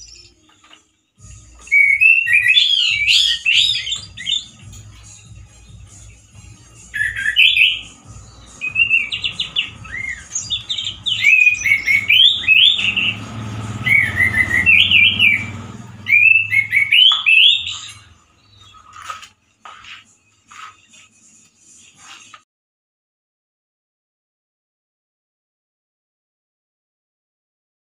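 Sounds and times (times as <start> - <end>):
thrush singing harsh warbles: 1.4 - 5.0, 5.6 - 19.2.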